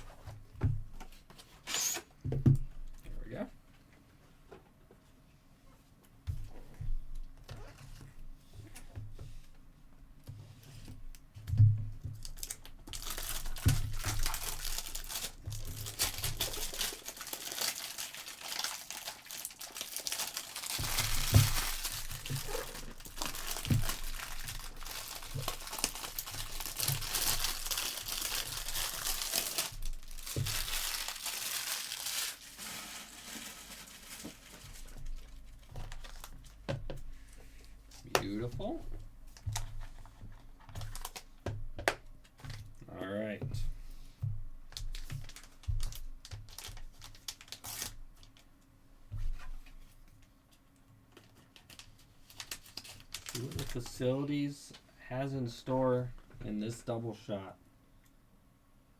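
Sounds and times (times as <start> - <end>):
foil wrappers tearing and crinkling: 12.2 - 36.5, 40.8 - 41.3, 44.8 - 48.5, 51.5 - 54.0.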